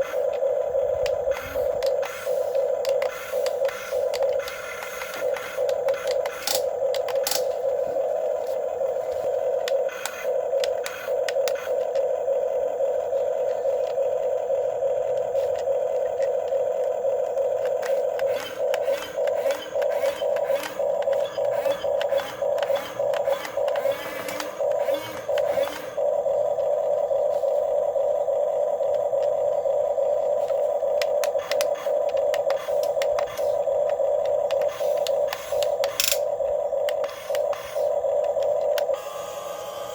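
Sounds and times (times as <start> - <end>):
electric motors whining: 0.0 - 39.9
clicks: 1.0 - 7.7, 9.5 - 12.1, 30.4 - 39.0.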